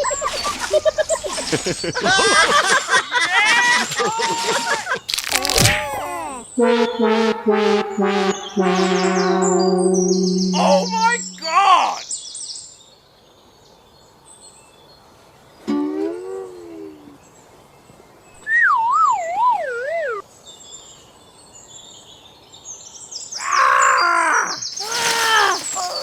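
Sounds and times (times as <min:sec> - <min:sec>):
loud high bending cry: 0:02.2 - 0:06.5, 0:10.3 - 0:12.0, 0:23.4 - 0:26.0
rising and falling tone: 0:06.6 - 0:11.5
wobbling falling whistle: 0:08.5 - 0:11.5.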